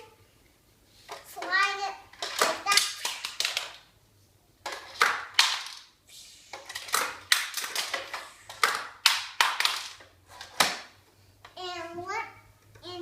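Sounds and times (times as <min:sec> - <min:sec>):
plastic toys clacking: 0:01.4 - 0:03.8, 0:04.6 - 0:05.9, 0:06.6 - 0:10.9.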